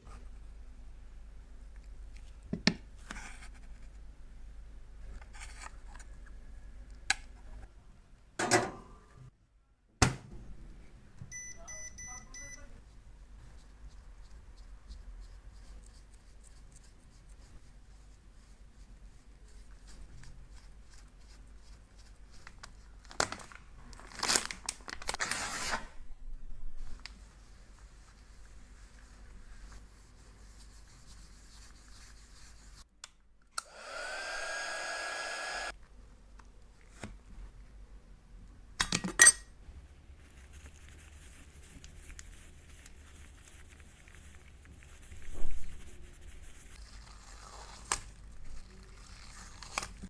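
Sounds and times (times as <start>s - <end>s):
crinkling and tearing: 22.4s - 25.5s, 40.3s - 50.0s.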